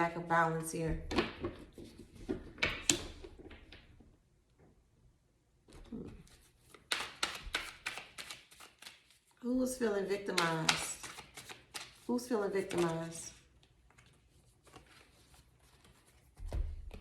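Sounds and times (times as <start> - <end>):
cards tapping and rustling: 5.8 - 9.3, 10.2 - 17.0.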